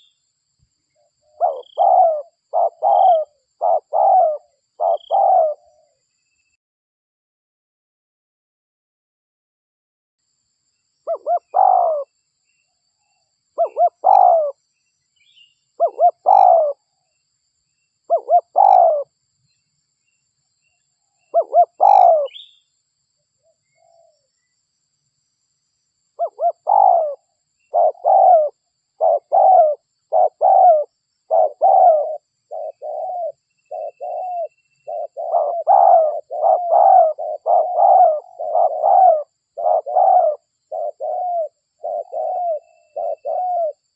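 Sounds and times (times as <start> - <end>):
dove cooing: 1.2 - 6.0, 11.1 - 12.1, 13.6 - 14.6, 15.8 - 16.8, 18.1 - 19.1, 21.3 - 22.5, 26.2 - 43.9.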